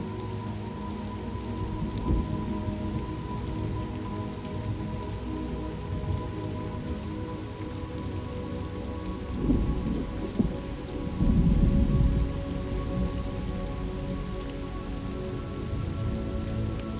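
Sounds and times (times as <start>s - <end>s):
rain falling: 0.0s - 16.9s
thunder rumbling: 1.6s - 4.0s, 9.3s - 14.4s.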